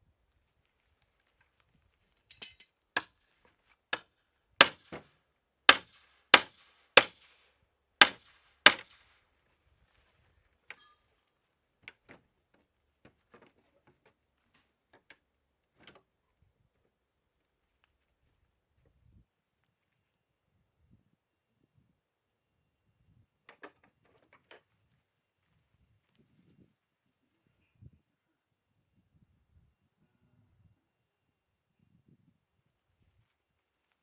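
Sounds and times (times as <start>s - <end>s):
hammer strikes: 4.6s - 5.0s, 5.7s - 7.3s, 8.0s - 8.9s.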